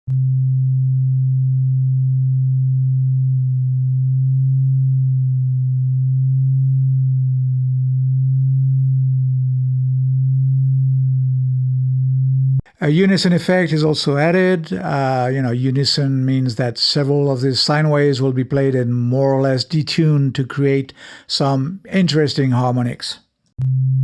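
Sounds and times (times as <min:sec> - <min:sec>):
low sine bass tone: 0:00.1 - 0:12.7, 0:23.6 - 0:24.0.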